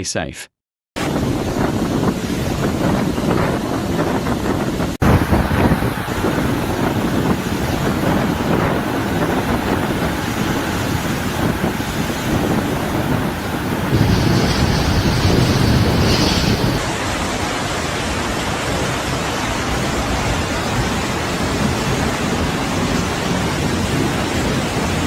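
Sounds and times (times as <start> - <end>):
wind buffeting microphone: 1.0 - 17.0
floodwater rushing: 5.0 - 25.0.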